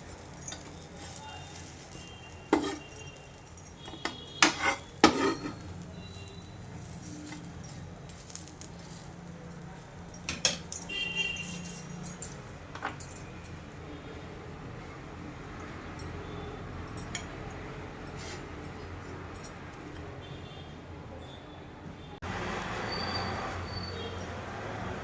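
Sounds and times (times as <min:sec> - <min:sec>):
metal utensils clinking: 0:00.0 - 0:13.6, 0:16.9 - 0:18.9.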